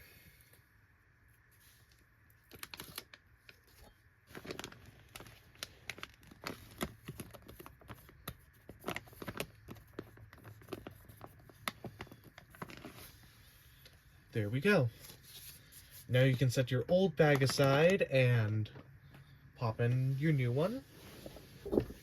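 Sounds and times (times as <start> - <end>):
paper crinkling and crackling: 1.5 - 13.9, 20.6 - 22.0
small clicks and rustles: 1.8 - 14.0.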